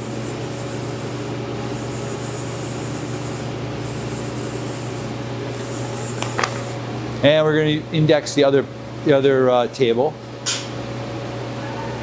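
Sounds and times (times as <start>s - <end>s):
high machine whine: 0.0s - 8.0s
machine hum: 0.0s - 12.0s.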